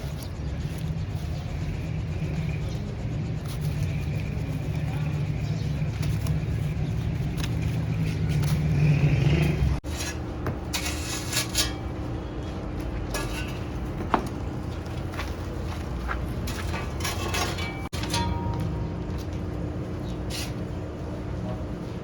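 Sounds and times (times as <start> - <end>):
steady low drone: 0.0 - 9.8
metal scraping and clinking: 7.6 - 12.2, 13.0 - 18.9.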